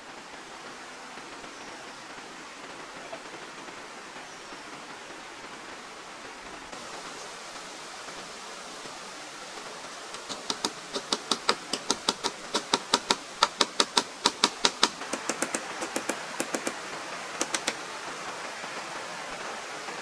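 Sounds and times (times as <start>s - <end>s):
rapid sharp taps: 10.2s - 16.8s, 17.4s - 17.8s.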